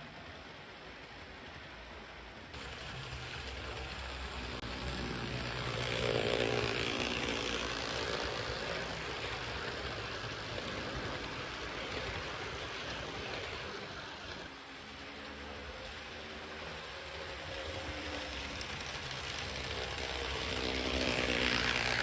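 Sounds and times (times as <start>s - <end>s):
model train wheel rumble and rattle: 0.0s - 22.0s
electric motor whir: 2.8s - 11.3s, 17.5s - 22.0s.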